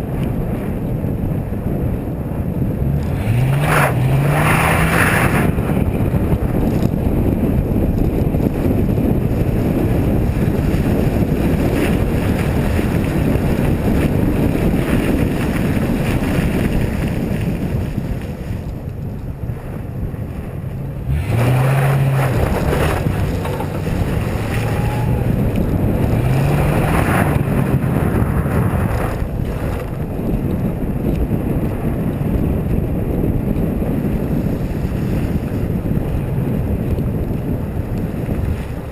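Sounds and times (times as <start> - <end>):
wind rushing over microphone: 0.0 - 38.9
car engine revving: 2.7 - 5.9, 20.7 - 29.4.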